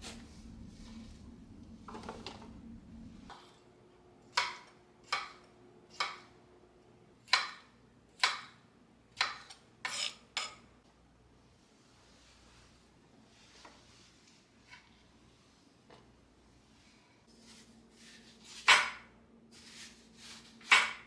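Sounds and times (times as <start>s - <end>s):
low steady hum: 0.0s - 3.3s.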